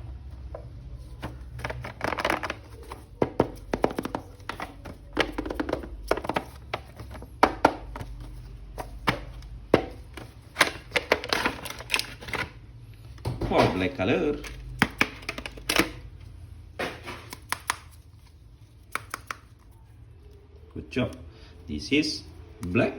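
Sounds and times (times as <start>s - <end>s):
packaging rustling: 1.0s - 12.6s.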